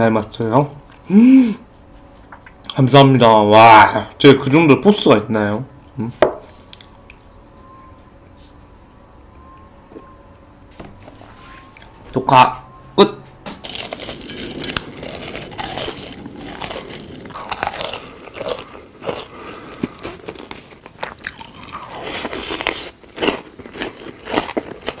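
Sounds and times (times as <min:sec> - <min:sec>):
person chewing crunchy food: 0:13.6 - 0:25.0.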